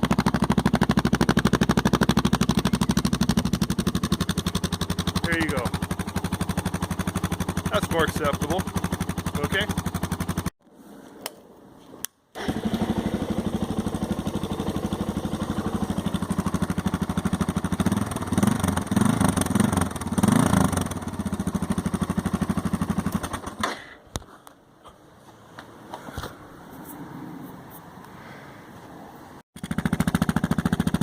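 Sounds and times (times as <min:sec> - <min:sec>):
motorcycle engine idling: 0:00.0 - 0:10.5, 0:12.4 - 0:23.6, 0:29.6 - 0:31.0
motorcycle throttle blips: 0:00.0 - 0:10.5.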